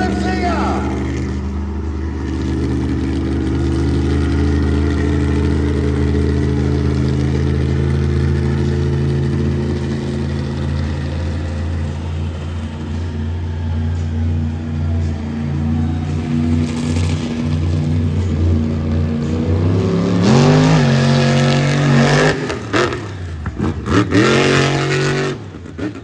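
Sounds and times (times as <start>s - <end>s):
truck engine running loud: 0.0s - 26.0s.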